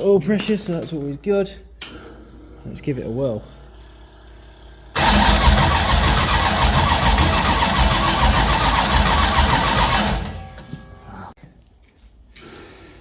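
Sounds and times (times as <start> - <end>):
race engine starting and running: 4.6 - 11.4.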